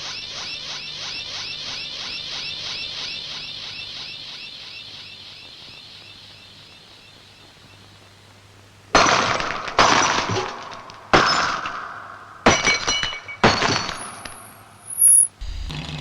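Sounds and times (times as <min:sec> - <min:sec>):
glass smashing: 0:12.5 - 0:15.3.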